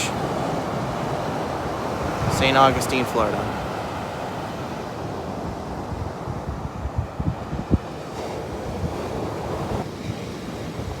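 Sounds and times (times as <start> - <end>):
ocean surf washing onto beach: 0.0 - 11.0
wind buffeting microphone: 0.0 - 11.0.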